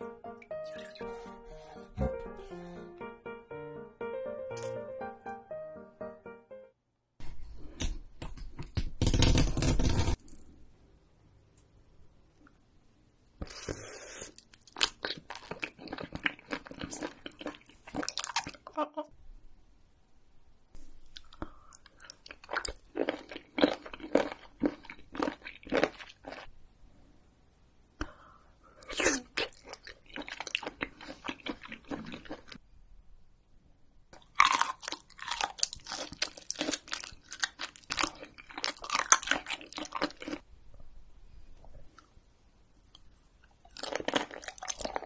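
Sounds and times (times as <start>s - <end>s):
person chewing: 13.4s - 18.7s, 21.1s - 26.5s, 28.8s - 32.6s, 34.2s - 40.4s, 42.9s - 45.0s.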